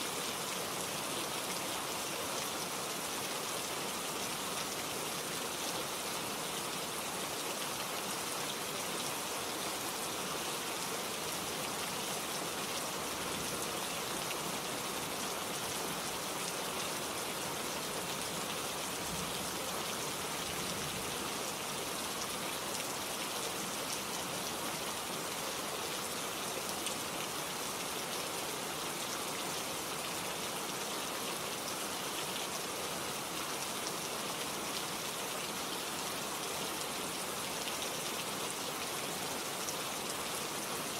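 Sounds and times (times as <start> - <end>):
steady rain hissing: 0.0 - 40.9.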